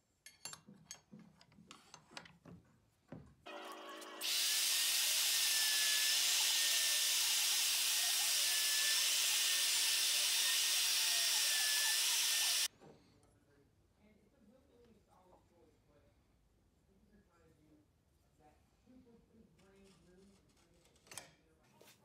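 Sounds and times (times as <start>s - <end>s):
dust extraction running: 3.5s - 12.7s
router cutting wood: 3.7s - 12.7s.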